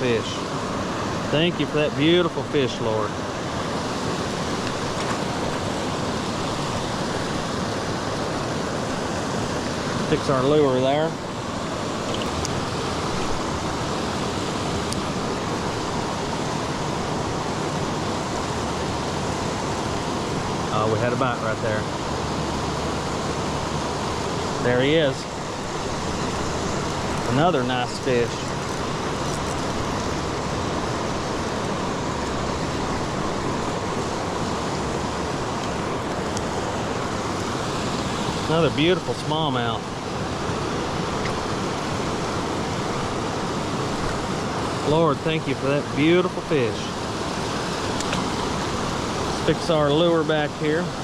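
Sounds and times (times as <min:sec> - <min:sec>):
creek water rushing over rocks: 0:00.0 - 0:51.0.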